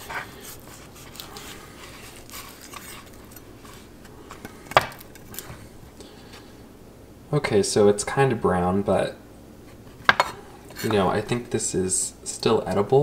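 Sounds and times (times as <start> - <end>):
knife scraping and handling: 0.0 - 6.5, 9.6 - 11.5.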